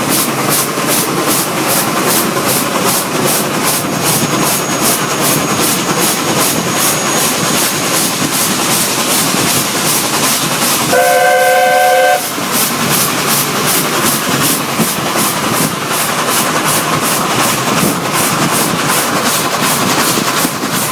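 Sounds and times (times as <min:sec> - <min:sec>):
steam train running: 0:00.0 - 0:20.9
steam locomotive whistle blast: 0:10.9 - 0:12.4.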